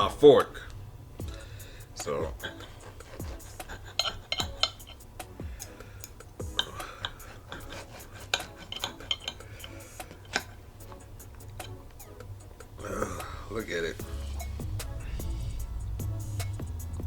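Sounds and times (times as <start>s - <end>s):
knife and fork scraping a plate: 2.4s - 5.1s, 6.5s - 11.9s.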